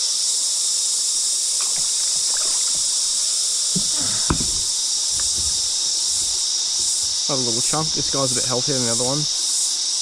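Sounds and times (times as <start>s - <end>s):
cicadas buzzing: 0.0s - 10.0s
water splashes: 1.6s - 9.0s
knock on kayak: 3.8s - 7.2s.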